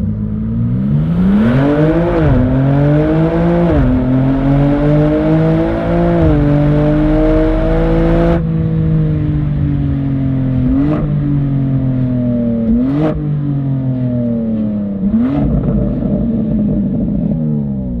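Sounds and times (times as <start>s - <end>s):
car engine decelerating: 0.0s - 18.0s
engine rev blips with cracks: 0.4s - 8.5s, 14.1s - 18.0s.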